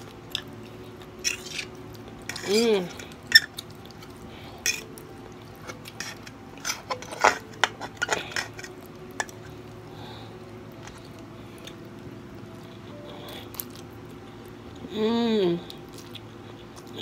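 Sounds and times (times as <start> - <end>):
utensil scraping a dish: 5.9 - 9.3.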